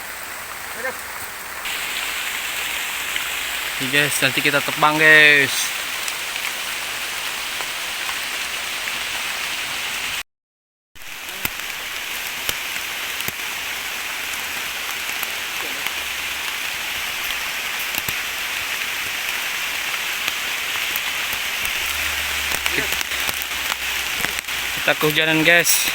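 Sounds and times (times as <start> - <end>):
rain falling: 0.0 - 10.2, 11.0 - 25.9
single raindrops ticking: 11.3 - 25.9.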